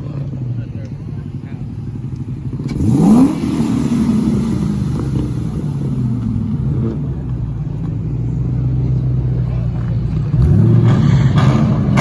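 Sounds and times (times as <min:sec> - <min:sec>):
car engine revving: 0:00.1 - 0:12.0.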